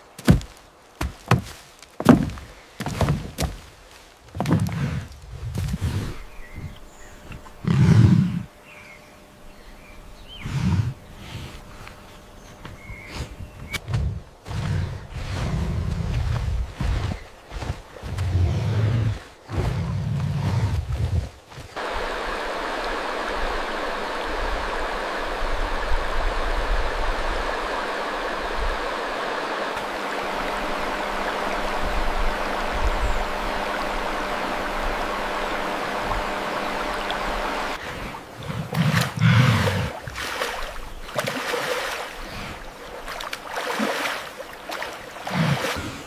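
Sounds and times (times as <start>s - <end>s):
rushing water: 21.8s - 46.0s
water splashing and sloshing: 27.0s - 46.0s.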